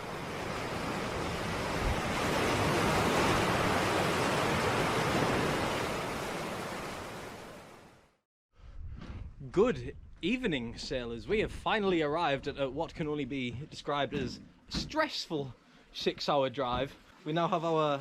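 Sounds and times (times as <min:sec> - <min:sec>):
steady rushing noise: 0:00.0 - 0:06.7.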